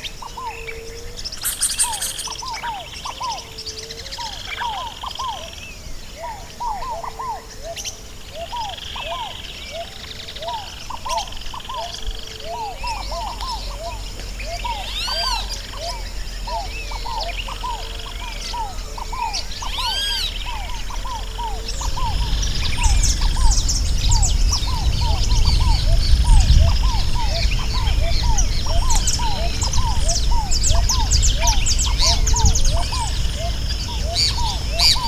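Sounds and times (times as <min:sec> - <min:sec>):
chorus of birds calling: 0:00.0 - 0:35.0
ringing arched bird call: 0:00.2 - 0:35.0
low rumble: 0:12.7 - 0:35.0.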